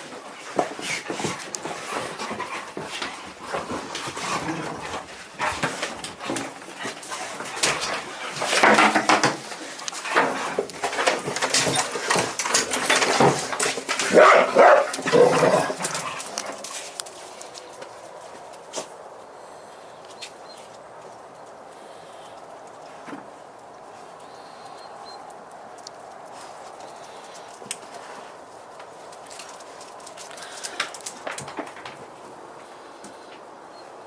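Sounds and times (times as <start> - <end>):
puppies whimpering and barking: 11.4 - 13.4.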